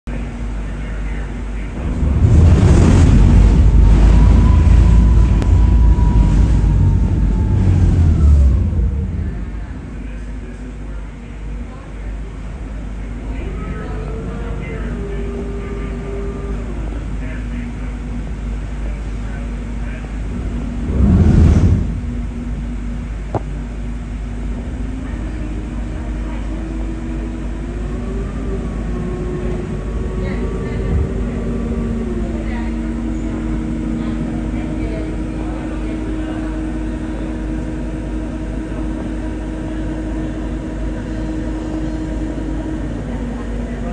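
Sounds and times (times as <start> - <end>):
boat low rumble: 0.1 - 43.9
loud rushing swell: 1.7 - 10.1, 20.3 - 23.2
wind buffeting on microphone: 1.8 - 9.9, 20.2 - 23.6.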